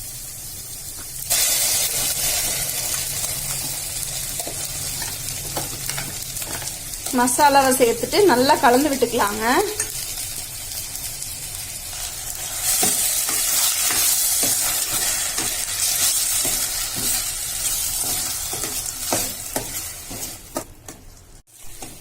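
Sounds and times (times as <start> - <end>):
paste sizzling in oil: 0.0 - 22.0
spoon stirring in pan: 12.0 - 22.0.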